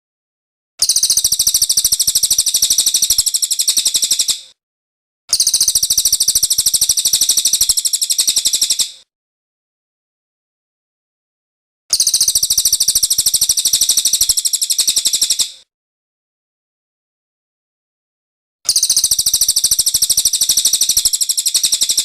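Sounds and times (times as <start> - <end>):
bird trilling: 18.7 - 22.0.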